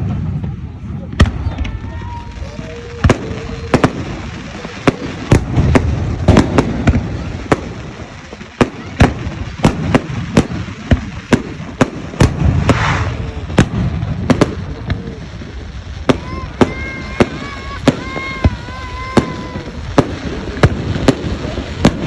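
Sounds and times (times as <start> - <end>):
fireworks sharp bangs: 0.0 - 22.0
brief hiss: 12.6 - 13.3.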